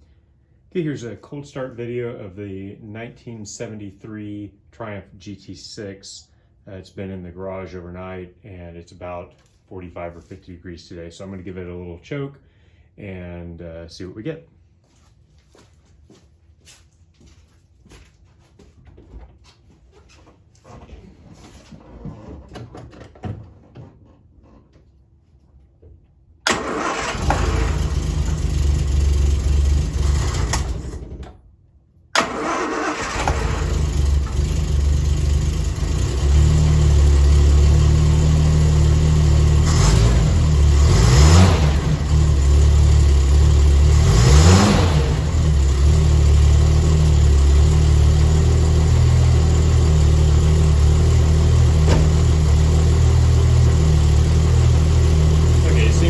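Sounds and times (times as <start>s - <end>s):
car engine cold-starting and idling: 26.5s - 31.5s, 32.2s - 56.0s.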